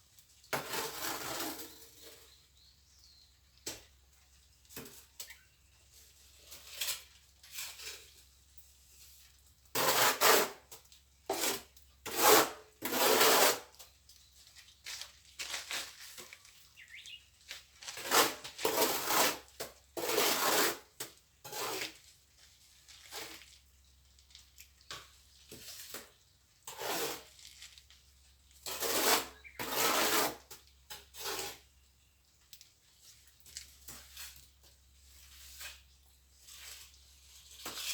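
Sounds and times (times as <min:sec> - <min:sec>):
trowel scraping wet mortar: 0:00.5 - 0:02.4, 0:06.0 - 0:14.0, 0:17.8 - 0:23.7, 0:24.9 - 0:31.8, 0:33.4 - 0:37.9.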